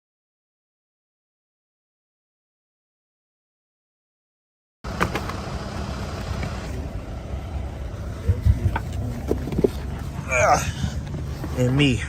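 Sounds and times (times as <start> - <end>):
vehicle rumbling: 4.8 - 12.0.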